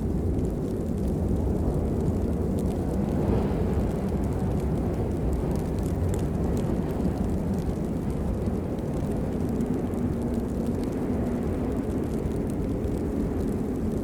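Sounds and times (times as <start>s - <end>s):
raindrop ticks: 0.0s - 14.0s
steady rain: 0.0s - 14.0s.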